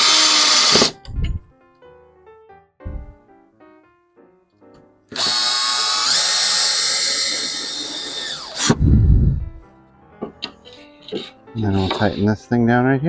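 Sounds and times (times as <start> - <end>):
power drill motor whining: 0.0 - 1.0, 5.1 - 9.3, 11.1 - 12.2
short low thud: 2.8 - 3.2.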